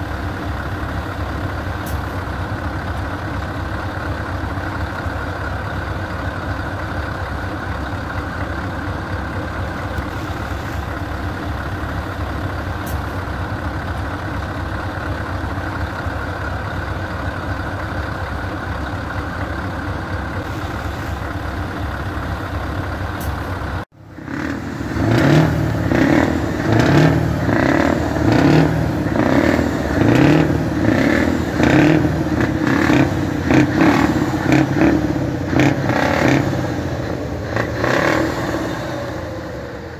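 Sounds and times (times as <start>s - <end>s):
truck engine idling: 0.0s - 39.9s
truck engine revving: 20.0s - 39.9s.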